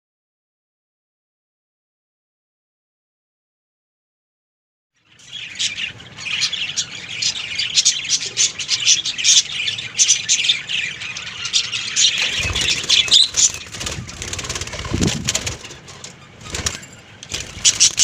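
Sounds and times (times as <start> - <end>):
budgerigars chirping and squawking: 5.0 - 18.0.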